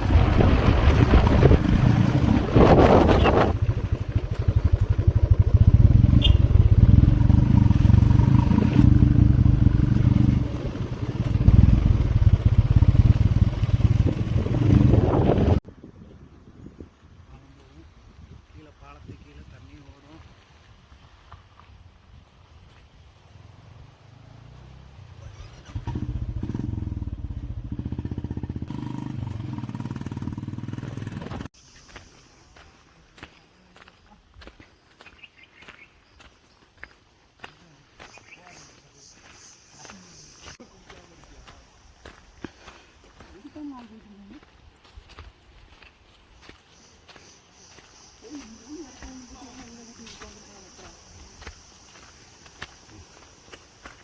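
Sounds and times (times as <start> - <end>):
vehicle engine running: 0.0 - 15.6, 46.8 - 54.0.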